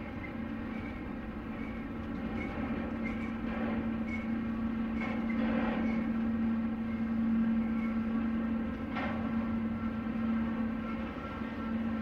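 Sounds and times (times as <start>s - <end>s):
freight train rolling rumble: 0.0s - 12.0s.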